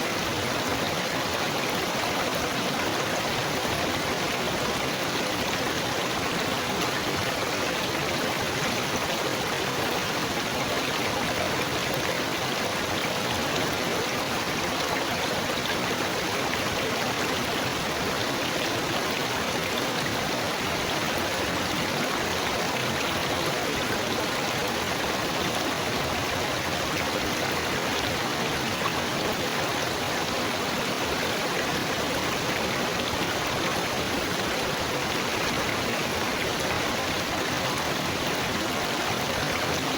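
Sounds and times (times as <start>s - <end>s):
water babbling and splashing: 0.0s - 39.9s.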